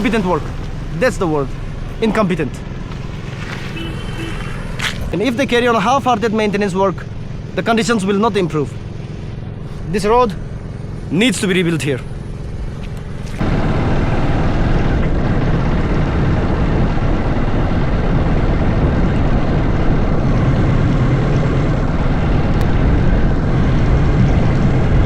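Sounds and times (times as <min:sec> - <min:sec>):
vehicle running with low rumble: 0:00.0 - 0:25.0.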